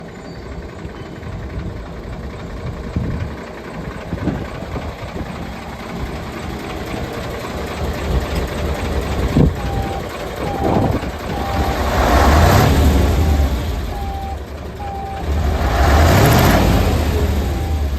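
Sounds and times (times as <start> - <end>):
diesel truck engine running: 0.0 - 17.9
reversing beeper: 9.2 - 17.9.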